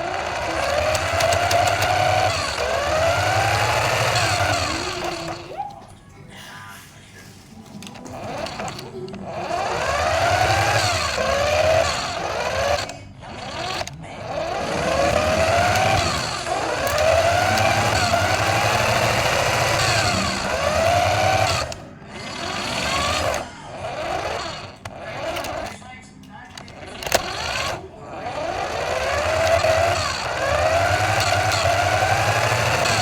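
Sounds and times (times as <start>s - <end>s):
toy car electric motor whining: 0.0s - 5.8s, 7.5s - 33.0s.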